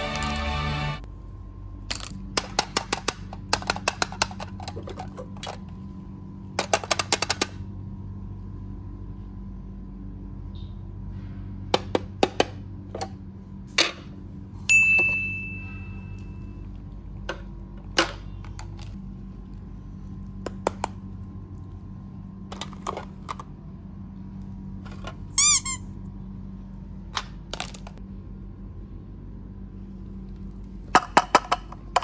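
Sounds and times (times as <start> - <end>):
plastic toys clicking: 1.9 - 5.6, 6.6 - 7.6
clack with ringing ding: 14.7 - 16.3.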